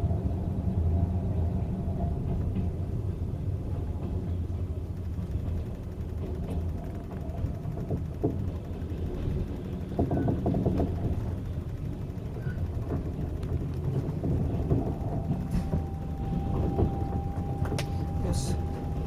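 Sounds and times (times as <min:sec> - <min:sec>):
faint steady whine: 0:00.0 - 0:19.0
train carriage rumble: 0:00.0 - 0:19.0
rattles and knocks: 0:04.8 - 0:19.0.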